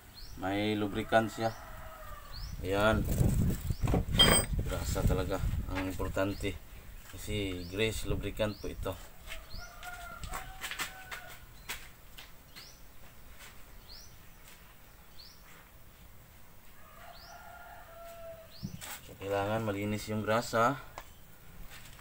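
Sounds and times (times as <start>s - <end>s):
birds chirping: 0.0s - 5.0s, 5.7s - 16.1s.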